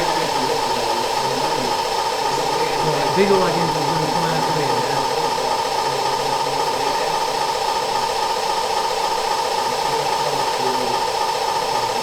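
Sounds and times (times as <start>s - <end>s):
constant hum: 0.0s - 12.0s
steady loud hiss: 0.0s - 12.0s.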